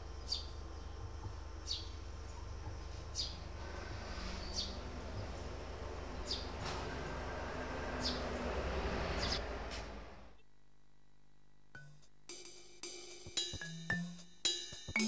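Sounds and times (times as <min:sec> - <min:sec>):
bird chirping: 0:00.0 - 0:06.6, 0:08.0 - 0:08.5, 0:09.1 - 0:09.4
steady low hum: 0:00.0 - 0:12.3.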